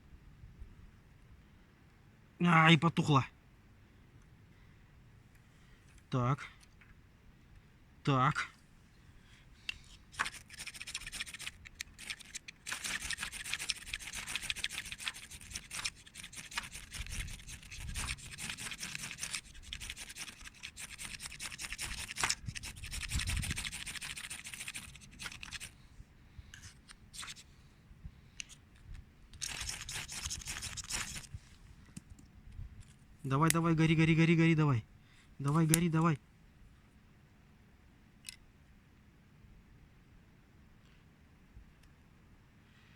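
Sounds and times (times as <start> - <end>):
firesteel rod scraping: 9.7 - 25.8.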